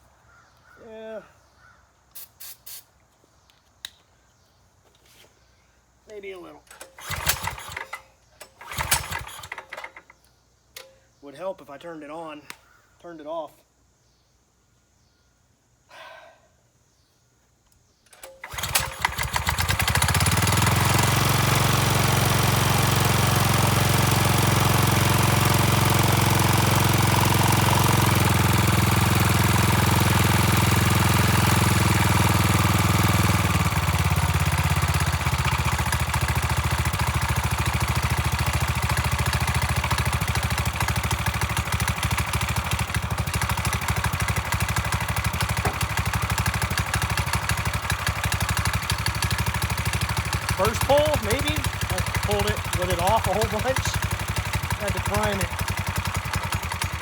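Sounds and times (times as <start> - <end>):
engine pull-start: 6.7 - 10.2, 18.1 - 57.0
small engine running: 6.8 - 10.2, 18.2 - 57.0.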